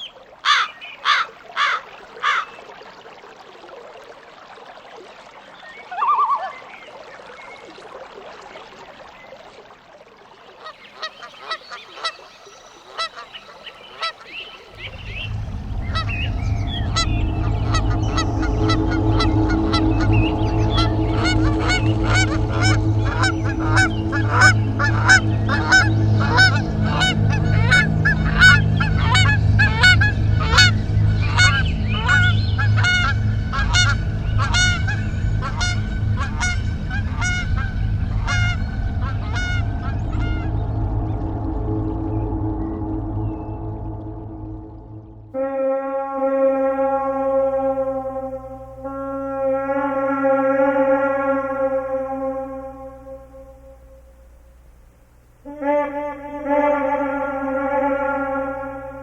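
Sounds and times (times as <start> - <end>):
flock of birds calling: 10.6 - 40.9
low steady drone: 14.6 - 59.0.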